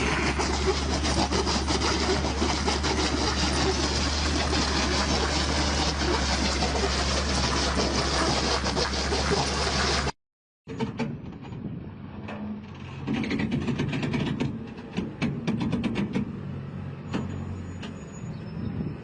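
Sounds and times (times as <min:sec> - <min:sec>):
road noise: 0:00.0 - 0:10.1, 0:11.0 - 0:19.0
truck engine drone: 0:00.0 - 0:10.2, 0:16.2 - 0:18.8.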